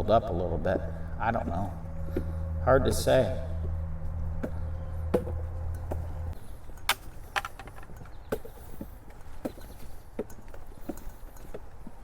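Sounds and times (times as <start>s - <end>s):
low steady hum: 0.0s - 8.3s
footsteps on wooden boardwalk: 7.0s - 12.0s.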